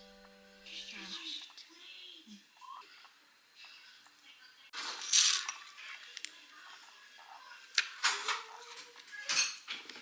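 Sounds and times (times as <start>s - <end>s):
dishes and utensils clinking: 8.0s - 10.0s.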